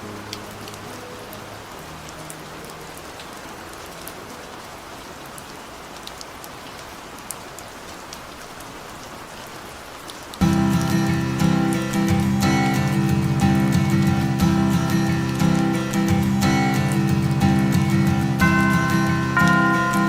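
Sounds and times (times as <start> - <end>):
steady rain: 0.0 - 20.0
loud guitar music: 10.4 - 20.0.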